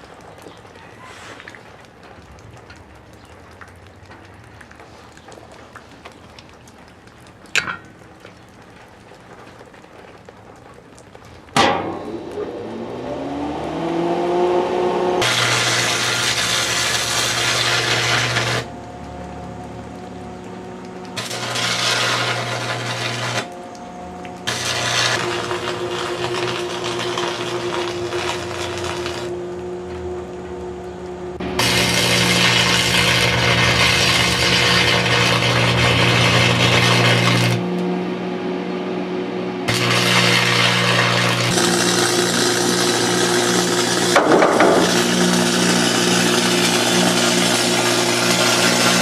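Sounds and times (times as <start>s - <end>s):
electric motor whine: 12.0s - 18.7s, 21.2s - 23.6s, 24.4s - 38.6s, 39.6s - 49.0s
whirring grinding noise: 12.0s - 49.0s.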